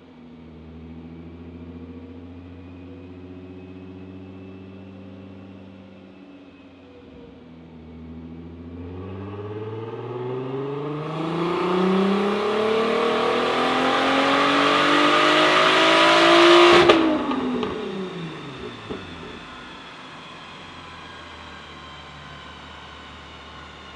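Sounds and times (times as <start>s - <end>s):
car engine full-throttle pull: 11.0s - 21.4s.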